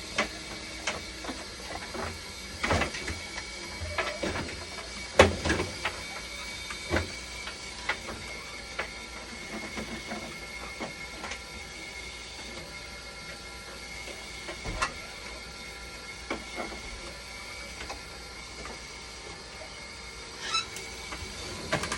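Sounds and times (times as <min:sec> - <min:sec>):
machine whine and hum: 0:00.0 - 0:21.9.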